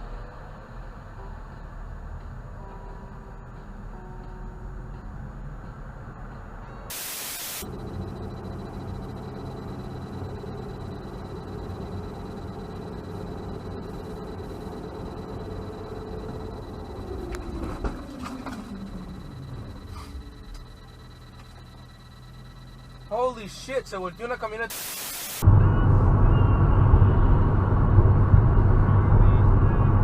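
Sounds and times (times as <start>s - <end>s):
vehicle road and engine noise: 0.0s - 30.0s
short burst of hiss: 6.9s - 7.6s, 24.7s - 25.4s.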